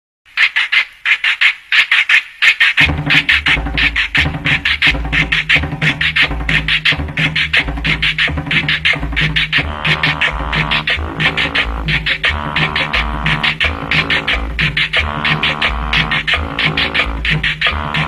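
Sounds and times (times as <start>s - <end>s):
fast percussion pattern: 0.3s - 18.0s
deep bass line: 4.2s - 18.0s.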